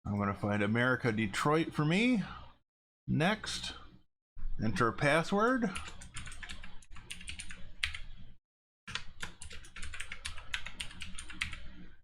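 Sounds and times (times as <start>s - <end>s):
keyboard typing: 5.8s - 8.1s, 8.9s - 11.8s.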